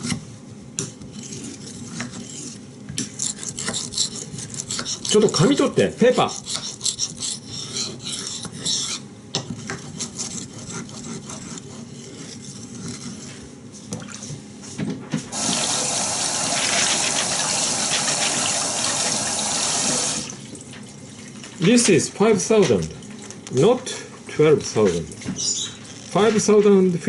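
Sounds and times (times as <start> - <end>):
water running from a tap: 15.4 - 20.5.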